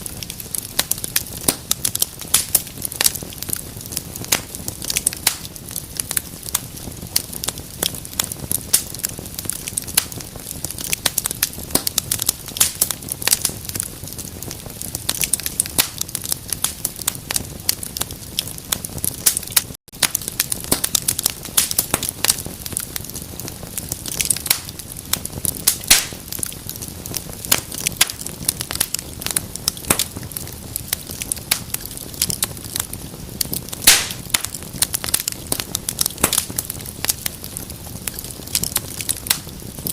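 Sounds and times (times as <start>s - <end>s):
fire popping: 0.0s - 39.9s
wood fire crackling: 0.0s - 39.9s.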